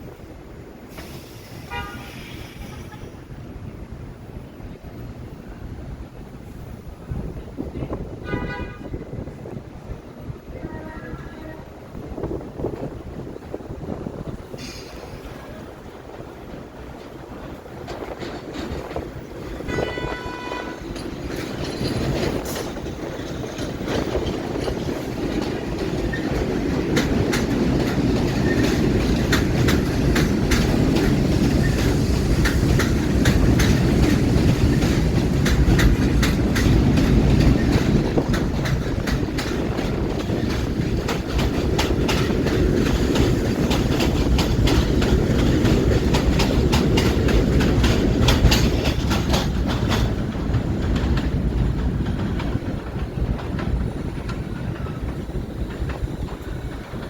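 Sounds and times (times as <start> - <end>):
subway train rumbling past: 0.0 - 57.0
wheels clacking over rail joints: 12.2 - 57.0.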